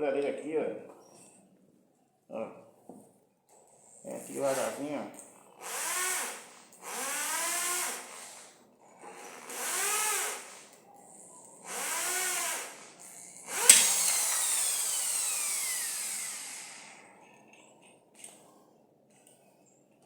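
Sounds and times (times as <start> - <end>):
electric drill motor: 5.6 - 17.2
sharp click: 13.6 - 14.6.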